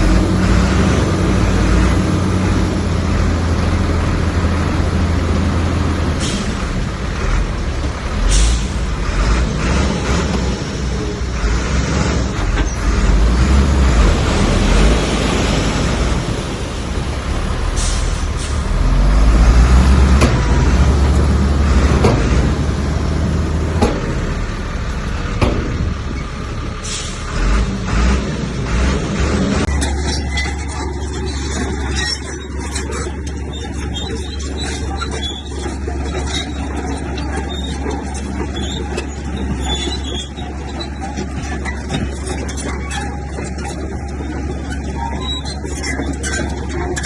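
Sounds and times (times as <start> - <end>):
diesel engine running under load: 0.0 - 47.0
machinery grinding: 27.4 - 47.0
clanks of metal and stone: 29.7 - 47.0.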